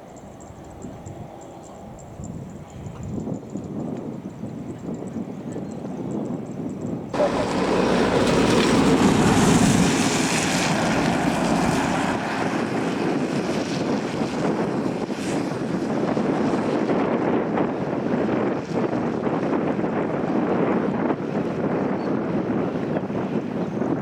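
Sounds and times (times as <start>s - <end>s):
wind buffeting microphone: 0.0s - 24.0s
heavy rain falling: 7.2s - 12.2s.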